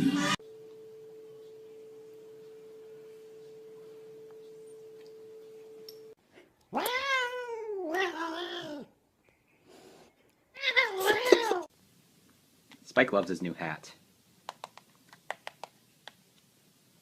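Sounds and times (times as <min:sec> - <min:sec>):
faint steady tone: 0:00.4 - 0:06.2
cat meowing and yowling: 0:06.7 - 0:08.9, 0:10.6 - 0:11.7.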